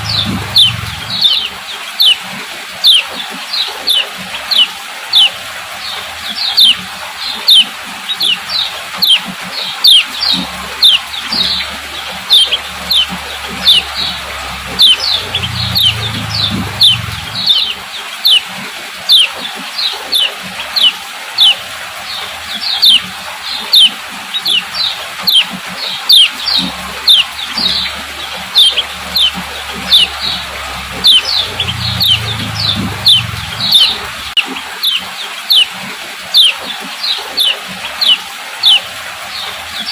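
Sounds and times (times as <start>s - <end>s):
bird chirping call notes: 0.0s - 2.2s, 7.4s - 9.2s, 9.8s - 18.5s, 22.6s - 35.7s, 37.4s - 38.9s.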